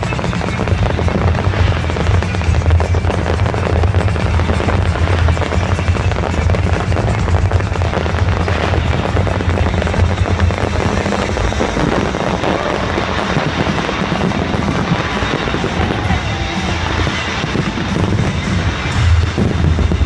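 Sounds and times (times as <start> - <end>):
fireworks crackling and banging: 0.0 - 20.0
loud music with heavy bass: 0.0 - 20.0.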